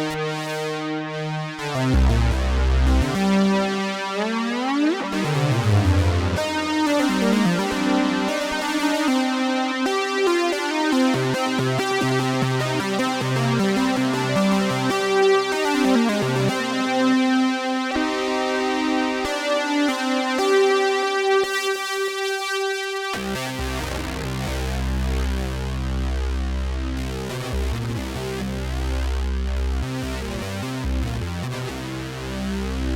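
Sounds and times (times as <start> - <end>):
analog synthesizer sequence: 0.0 - 21.6.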